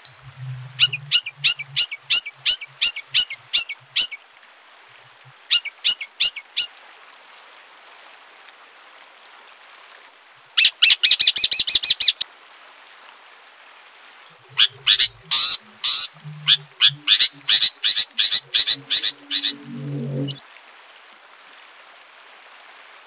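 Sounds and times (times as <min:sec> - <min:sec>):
songbird high-pitched call notes: 0:00.0 - 0:04.2, 0:05.5 - 0:06.7, 0:14.5 - 0:20.4.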